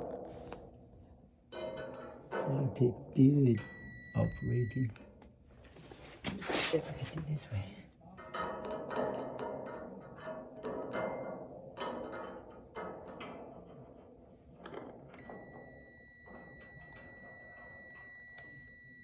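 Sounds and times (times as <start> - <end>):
multimeter continuity beep: 3.5 - 5.0, 15.2 - 19.0.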